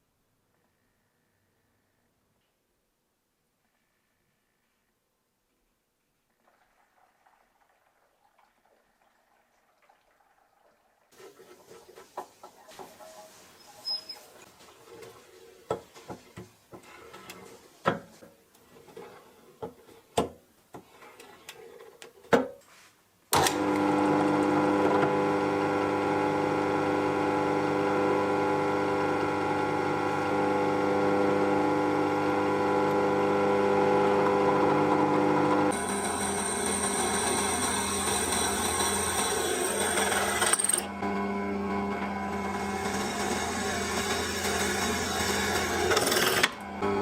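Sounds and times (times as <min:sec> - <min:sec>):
drill press humming: 0:24.9 - 0:47.0.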